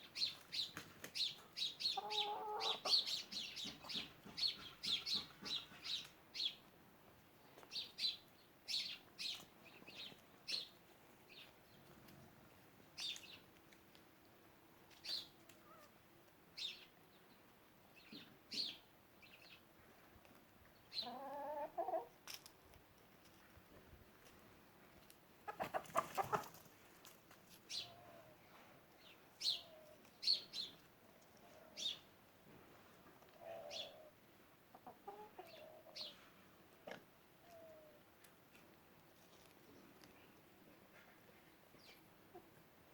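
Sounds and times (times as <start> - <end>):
chicks chirping: 0.2 - 6.6
hen calling: 1.6 - 6.1.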